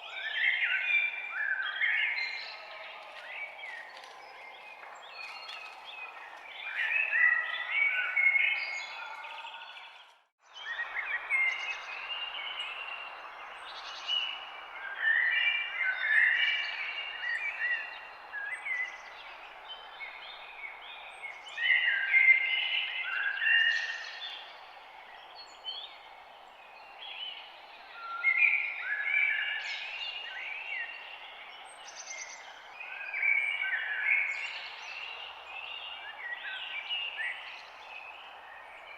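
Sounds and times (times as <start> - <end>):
songbirds chirping and singing: 0.0 - 38.9.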